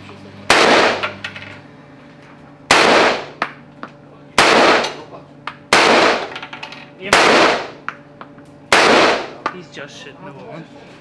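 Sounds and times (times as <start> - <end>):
pistol shots: 0.5 - 1.2, 2.7 - 3.5, 4.4 - 5.1, 5.7 - 6.4, 7.1 - 7.9, 8.7 - 9.4.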